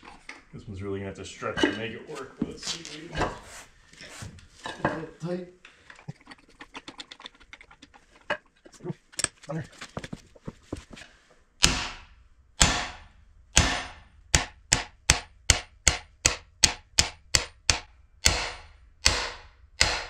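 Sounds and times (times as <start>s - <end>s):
hammer striking metal: 11.6s - 20.0s.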